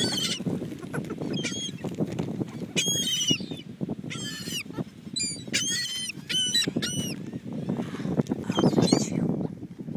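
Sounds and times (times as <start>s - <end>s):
seagulls squawking: 0.0s - 1.8s, 2.6s - 7.4s
low rush of wind or surf: 0.0s - 9.9s.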